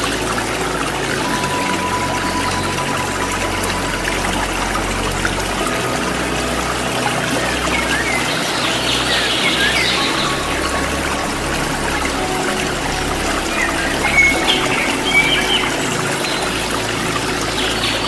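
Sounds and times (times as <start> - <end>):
waterfall pouring and splashing: 0.0 - 18.0
songbird chirps: 5.6 - 11.4, 12.0 - 18.0.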